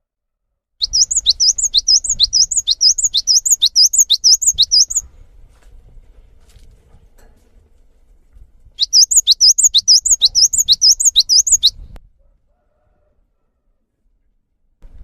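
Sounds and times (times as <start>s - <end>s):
songbird singing looping phrases: 0.8s - 5.0s, 8.8s - 12.0s.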